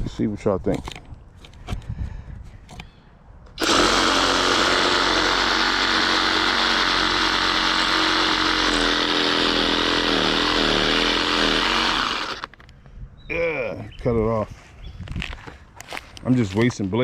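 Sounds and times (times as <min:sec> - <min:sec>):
reciprocating saw cutting wood: 0:03.6 - 0:12.6.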